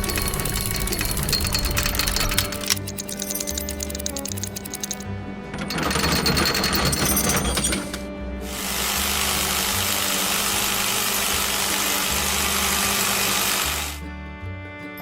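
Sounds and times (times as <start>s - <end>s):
engine rumbling: 0.0s - 6.0s.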